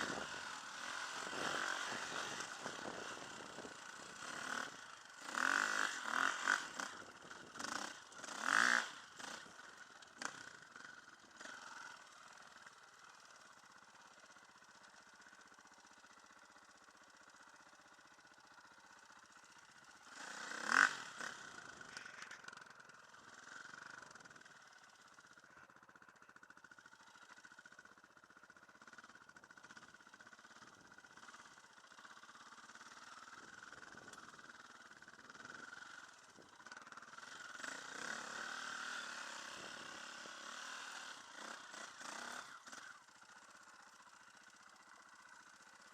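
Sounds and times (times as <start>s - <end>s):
dirt bike engines revving: 0.0s - 10.4s.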